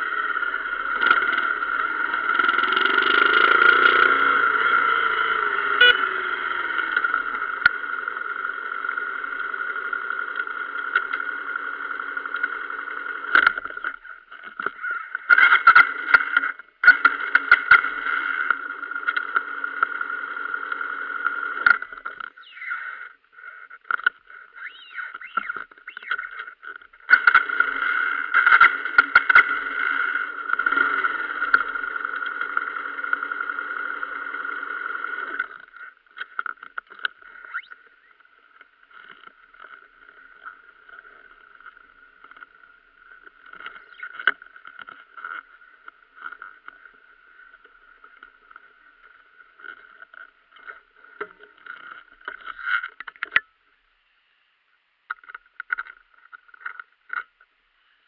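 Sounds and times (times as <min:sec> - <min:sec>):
motorbike engine running: 0:00.0 - 0:13.8, 0:15.3 - 0:22.0, 0:27.0 - 0:36.4.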